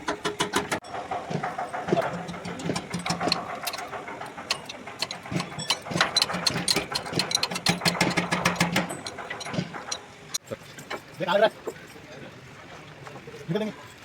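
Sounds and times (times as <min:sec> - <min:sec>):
engine running: 0:00.0 - 0:10.4
sharp metallic clicks: 0:00.0 - 0:10.4.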